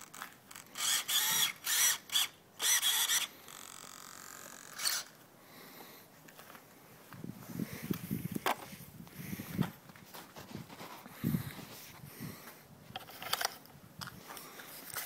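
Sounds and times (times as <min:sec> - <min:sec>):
pull-starter ratcheting whir: 0:00.0 - 0:05.2.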